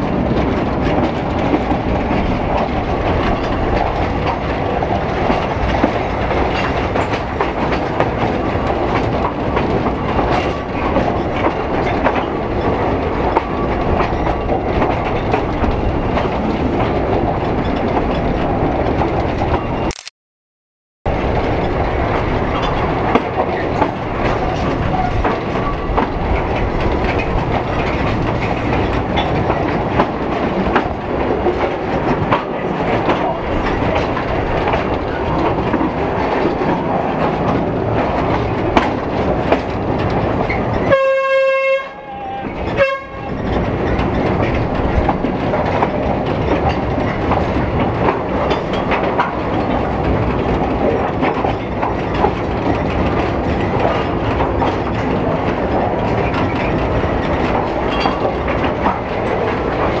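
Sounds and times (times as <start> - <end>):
wheels clicking over rail joints: 0.0 - 19.8, 21.1 - 60.0
train rumble: 0.0 - 19.9, 21.1 - 60.0
train horn blasts: 40.9 - 43.4.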